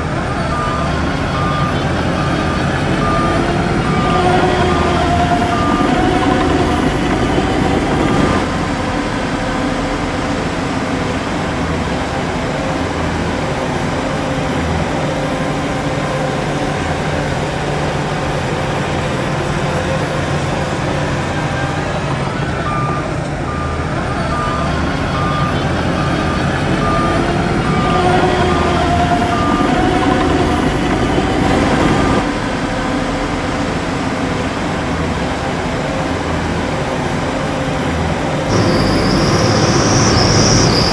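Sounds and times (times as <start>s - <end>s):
reversing alarm beeping: 0.0s - 8.8s, 20.7s - 32.3s, 38.5s - 40.9s
heavy diesel machinery running: 0.0s - 40.9s.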